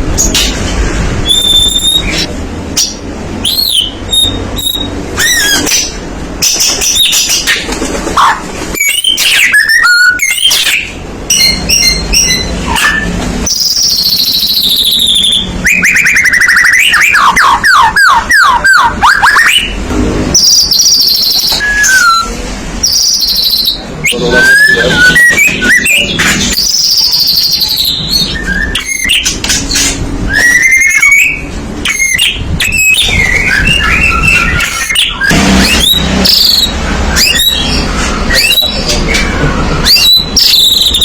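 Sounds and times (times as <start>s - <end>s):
bird singing whistles and trills: 1.2s - 7.6s, 8.8s - 19.8s, 20.4s - 41.0s.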